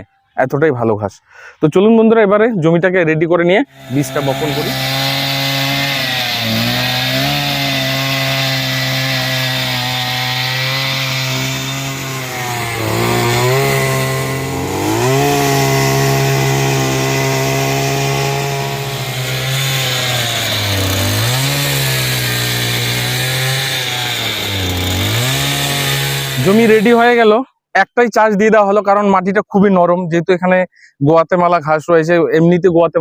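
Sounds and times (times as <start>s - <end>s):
tiller engine running: 3.7s - 27.1s.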